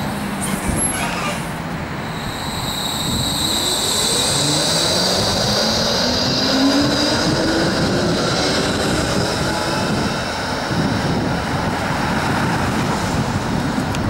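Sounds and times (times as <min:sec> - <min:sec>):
tram motors whining: 0:00.0 - 0:14.0
wheels rumbling on rails: 0:00.0 - 0:14.0
thin high whine: 0:02.0 - 0:05.9.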